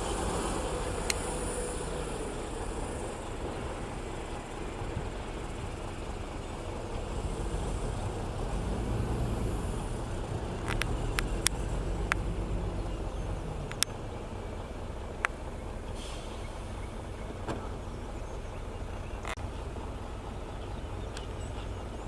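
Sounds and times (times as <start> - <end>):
heavy machinery diesel engine rumbling: 0.0 - 22.0
sharp clicks: 10.5 - 12.3.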